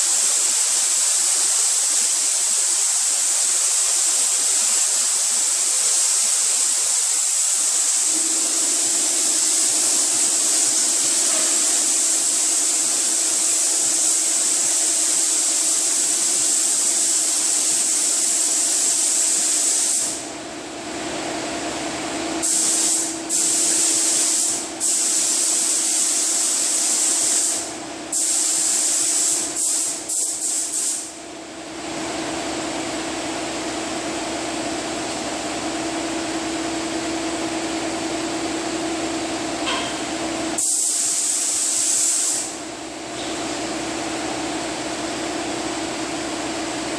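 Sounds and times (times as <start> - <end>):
paint spray gun hissing: 0.0 - 20.3, 22.4 - 31.2, 39.7 - 42.6.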